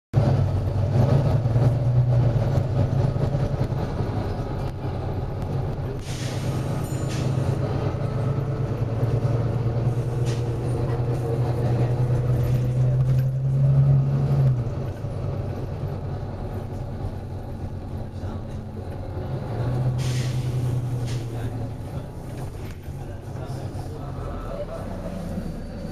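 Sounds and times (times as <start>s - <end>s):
bus diesel engine running: 0.1s - 25.9s
air brake hiss: 6.0s - 7.5s, 19.9s - 21.3s.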